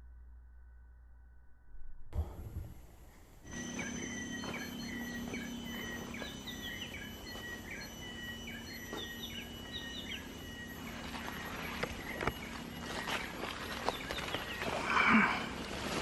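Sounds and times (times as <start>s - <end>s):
faint high whine: 0.0s - 16.0s
low hum: 0.0s - 16.0s
bird chirping: 3.5s - 16.0s.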